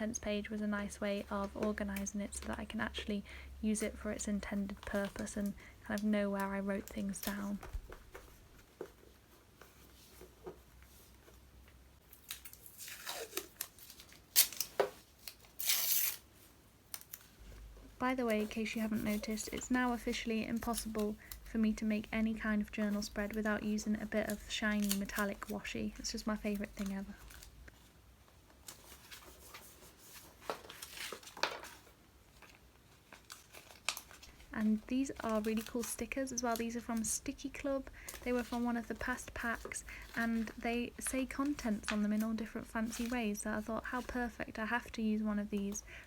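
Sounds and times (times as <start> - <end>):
paper rustling and ticking: 0.5 - 3.0, 3.7 - 11.4, 16.9 - 45.9
paper and tape tearing: 12.2 - 16.3.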